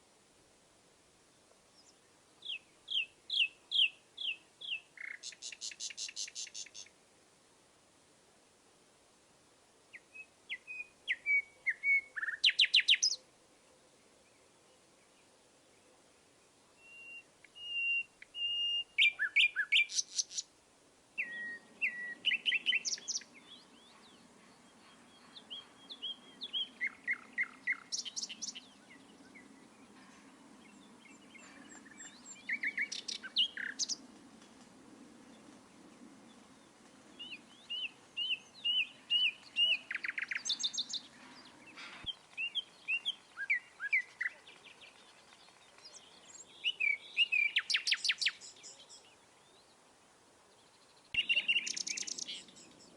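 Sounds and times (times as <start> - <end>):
faint low steady rush: 0.0 - 5.0, 6.2 - 12.3, 13.1 - 52.9
songbirds chirping and singing: 21.2 - 34.1, 36.3 - 49.8, 50.5 - 52.9.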